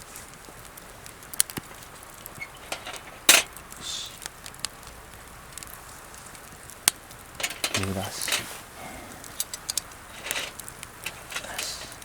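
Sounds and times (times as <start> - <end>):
campfire crackling and popping: 0.0 - 12.0
loud crack: 1.4 - 5.0, 6.4 - 12.0.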